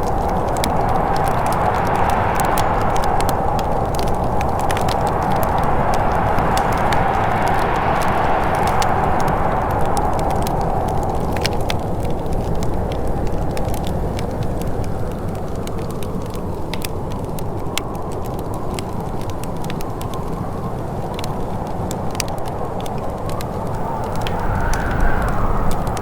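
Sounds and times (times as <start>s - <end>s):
wood fire crackling and popping: 0.0s - 26.0s
soft whooshing: 0.6s - 11.1s, 23.7s - 26.0s.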